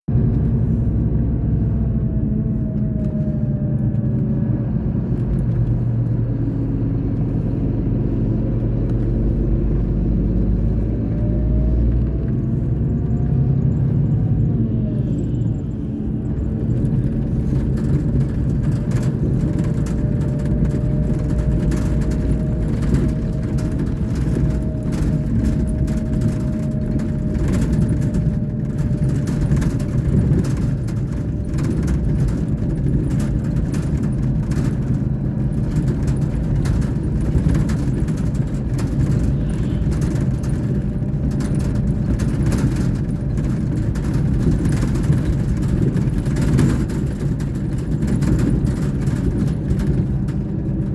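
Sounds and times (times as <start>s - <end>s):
diesel engine droning: 0.0s - 50.9s.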